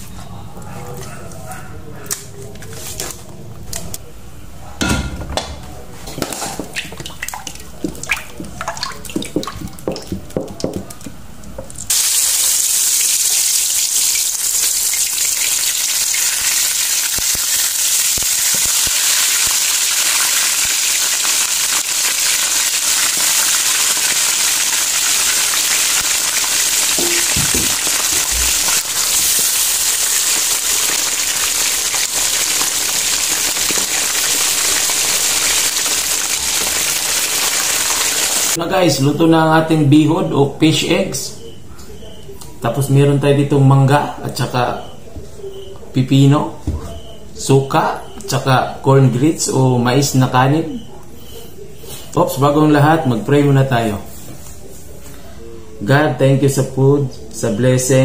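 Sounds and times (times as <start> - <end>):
kitchen handling clicks and knocks: 4.8 - 6.8, 27.0 - 28.6
deep-frying sizzle: 11.9 - 38.6.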